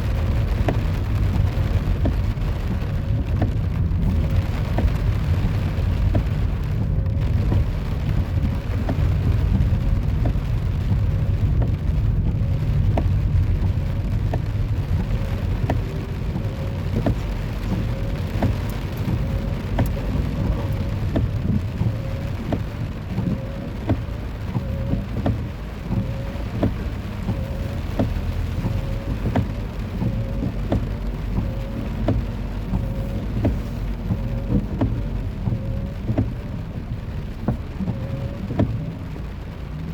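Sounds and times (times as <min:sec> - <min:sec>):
low rain rumble: 0:00.0 - 0:39.9
raindrop ticks: 0:00.0 - 0:39.9.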